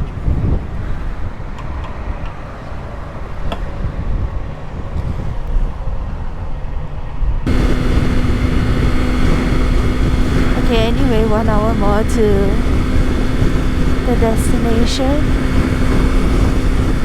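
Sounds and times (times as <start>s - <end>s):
wind and road rumble: 0.0s - 17.0s
motorcycle engine drone: 7.5s - 17.0s.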